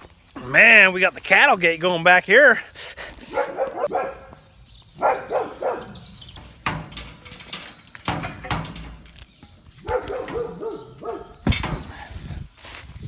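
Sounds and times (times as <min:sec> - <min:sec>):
dogs barking: 0:03.2 - 0:06.2, 0:09.8 - 0:11.4.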